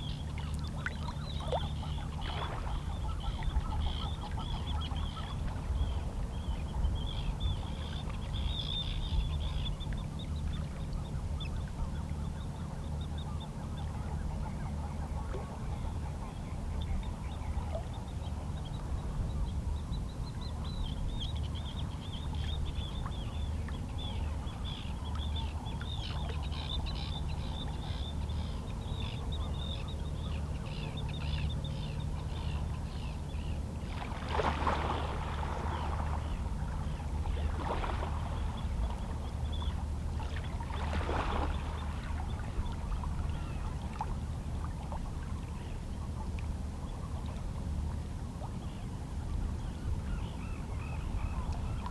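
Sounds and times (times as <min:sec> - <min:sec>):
low sea rumble: 0:00.0 - 0:51.9
waves lapping against rocks: 0:37.4 - 0:38.6, 0:40.3 - 0:42.4.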